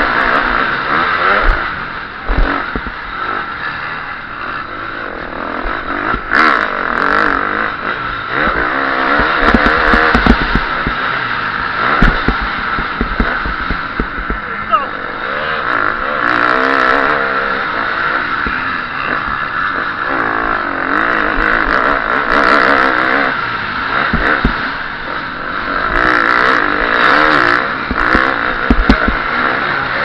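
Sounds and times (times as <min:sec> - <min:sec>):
motocross engine revving: 0:00.0 - 0:30.0
bike knocking over rough ground: 0:09.2 - 0:11.0, 0:12.0 - 0:14.5, 0:27.9 - 0:29.2.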